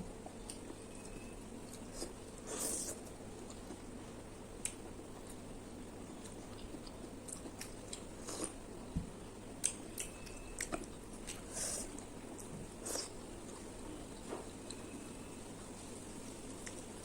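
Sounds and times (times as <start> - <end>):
person chewing: 0.2 - 4.0, 4.6 - 8.6, 9.6 - 14.8.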